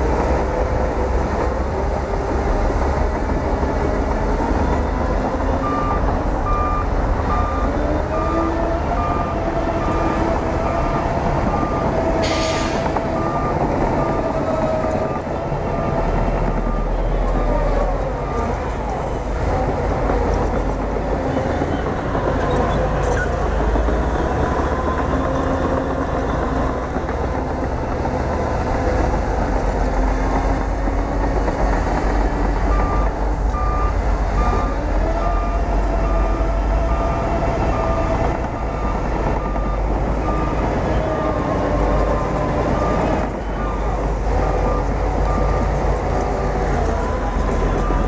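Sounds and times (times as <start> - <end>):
bulldozer diesel engine: 0.0 - 48.0
reversing alarm beeping: 4.6 - 19.0, 32.7 - 48.0.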